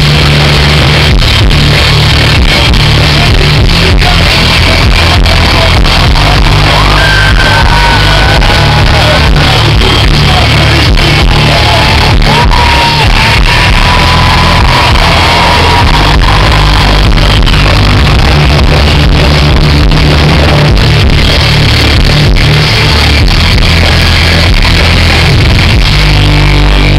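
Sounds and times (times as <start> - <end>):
live rock band playing: 0.0 - 26.9
crowd shouting: 4.5 - 18.6.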